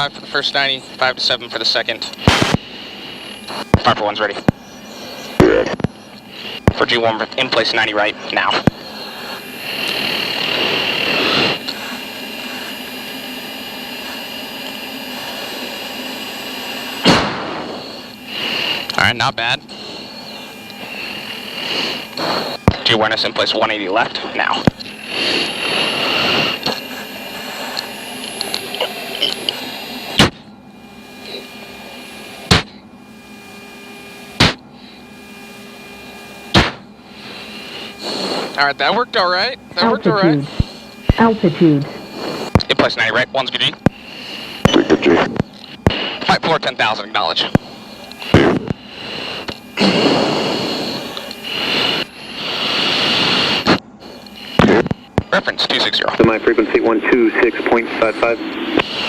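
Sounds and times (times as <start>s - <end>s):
jet cockpit hum and whine: 0.0s - 59.0s
sharp breaths into oxygen mask: 19.7s - 22.6s, 37.1s - 38.6s, 43.9s - 44.6s, 48.2s - 54.6s.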